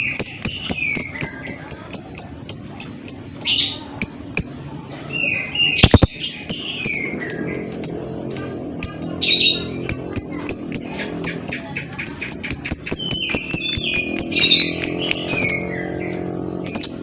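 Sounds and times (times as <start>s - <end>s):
lovebird chirping: 0.0s - 17.0s
bird squawking: 5.2s - 17.0s.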